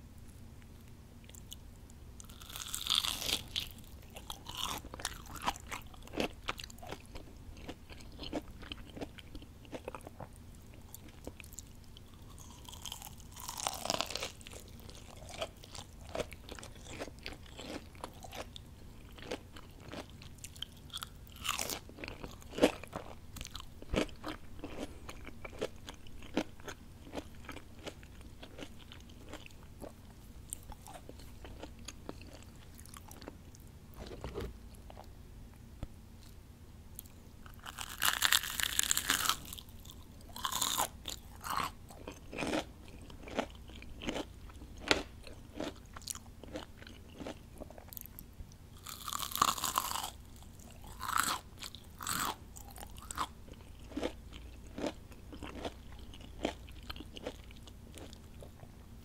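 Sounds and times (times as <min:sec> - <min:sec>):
crackly chewing: 0:00.6 - 0:35.2, 0:35.8 - 0:59.0
crunching bites: 0:02.2 - 0:10.3, 0:12.1 - 0:29.9, 0:37.5 - 0:48.1, 0:48.8 - 0:58.2.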